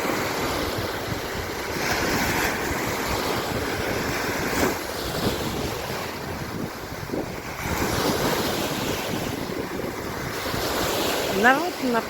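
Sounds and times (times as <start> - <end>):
waves breaking on beach: 0.0 - 12.0
wind buffeting microphone: 0.0 - 12.0.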